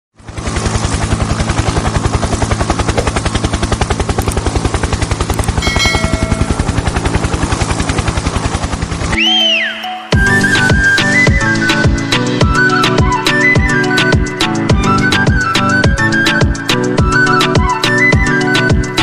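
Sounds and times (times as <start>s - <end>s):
helicopter rotor chopping: 0.2s - 9.2s
whistling glide: 9.1s - 18.8s.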